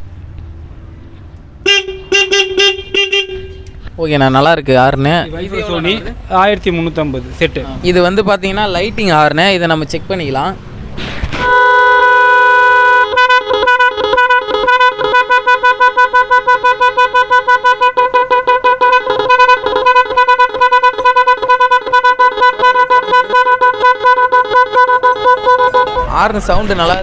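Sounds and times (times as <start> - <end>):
electronic horn beeping tune: 1.6 - 3.8, 11.4 - 26.6
electronic horn steady tone: 1.6 - 3.8, 11.4 - 26.3.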